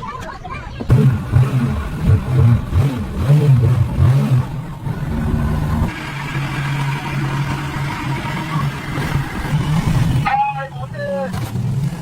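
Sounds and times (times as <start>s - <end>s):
engine revving: 0.9s - 10.3s.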